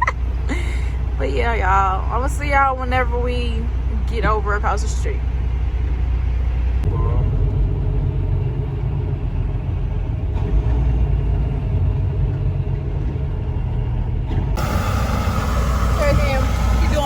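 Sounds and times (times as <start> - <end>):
truck diesel engine rumbling: 0.0 - 17.0
bright hiss: 14.6 - 17.0.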